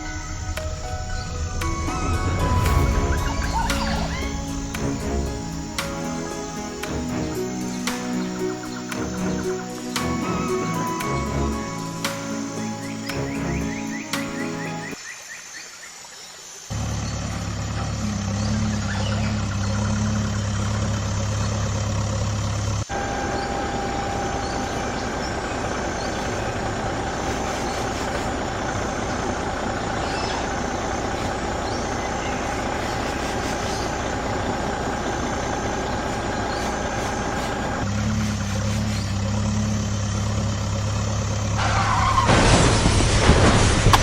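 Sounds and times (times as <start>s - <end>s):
heavy truck engine running: 0.0s - 15.0s, 16.7s - 44.0s
engine with steady whine: 16.7s - 41.8s.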